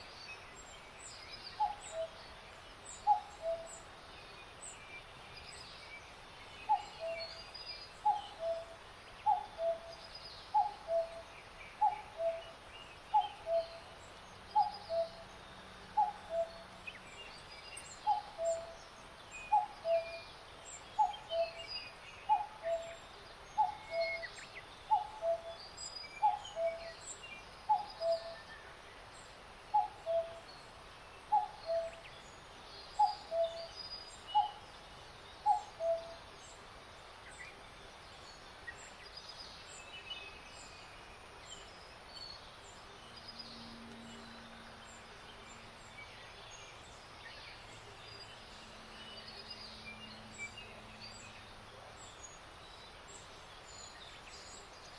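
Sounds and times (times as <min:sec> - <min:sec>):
bird chirps and trills: 0:00.0 - 0:36.6.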